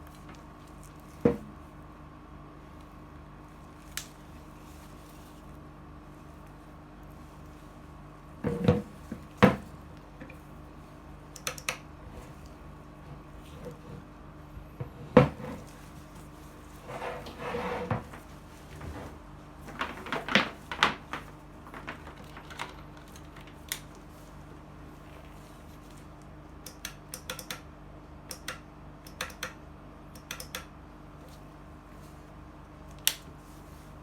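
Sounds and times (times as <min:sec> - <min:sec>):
scattered clicks: 0:11.3 - 0:11.8, 0:26.6 - 0:27.7, 0:28.3 - 0:30.7.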